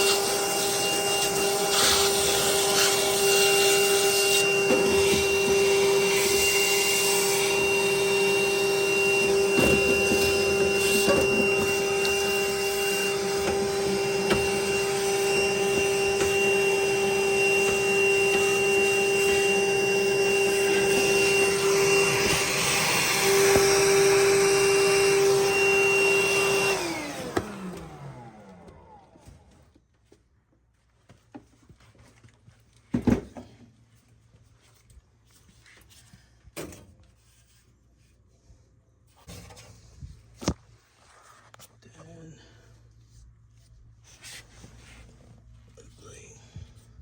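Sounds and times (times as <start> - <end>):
vacuum cleaner running: 0.0 - 29.6.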